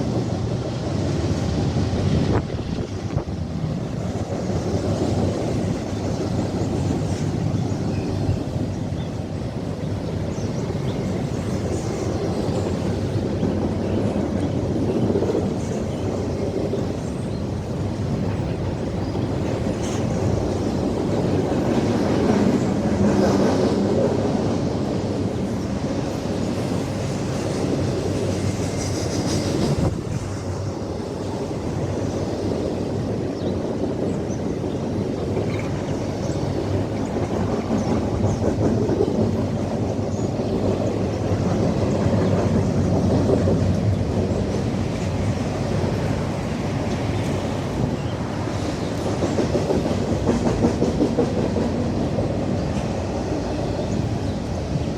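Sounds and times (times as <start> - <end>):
freight train wheels rumbling: 0.0 - 54.9
wheels clacking over rail joints: 32.4 - 54.9.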